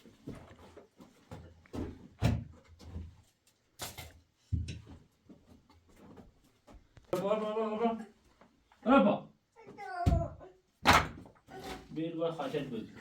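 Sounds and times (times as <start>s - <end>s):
knocks and thumps: 10.0s - 11.4s.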